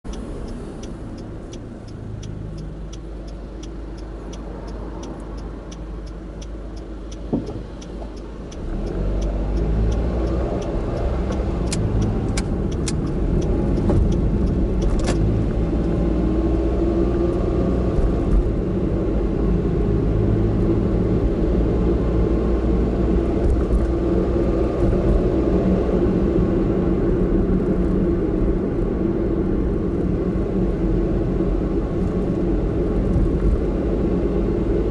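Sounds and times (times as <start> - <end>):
steady ticking: 0.0 - 15.0
car engine and road noise: 0.0 - 34.9.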